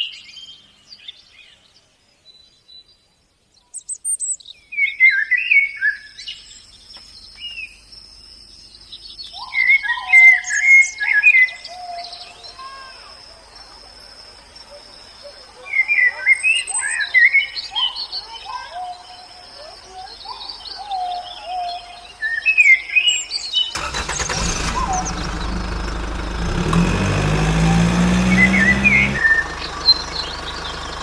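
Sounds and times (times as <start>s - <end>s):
birds chirping: 0.0s - 31.0s
machine humming: 24.6s - 31.0s.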